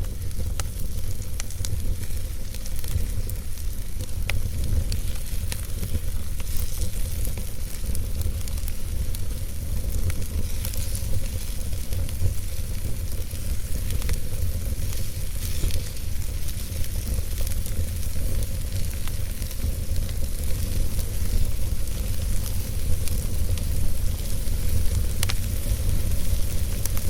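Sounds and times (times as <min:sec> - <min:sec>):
burning wood crackling: 0:00.0 - 0:27.0
fire rumbling and hissing: 0:00.0 - 0:27.0.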